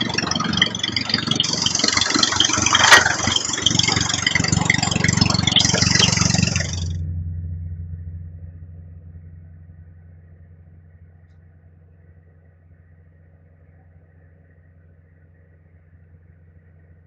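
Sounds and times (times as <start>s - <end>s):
harsh mechanical noise: 0.0s - 7.0s
low engine-like hum: 0.0s - 17.0s.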